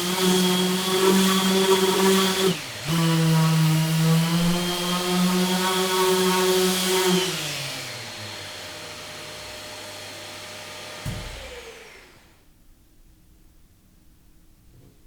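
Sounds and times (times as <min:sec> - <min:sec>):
power tool motor winding down: 0:00.0 - 0:12.4
knock: 0:11.0 - 0:11.5.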